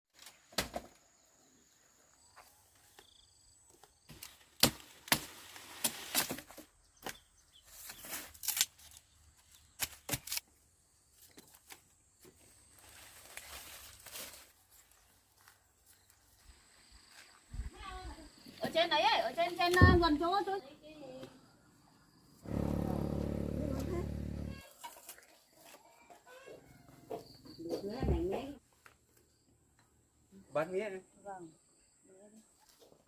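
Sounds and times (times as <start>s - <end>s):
rustling noise: 12.7s - 15.6s.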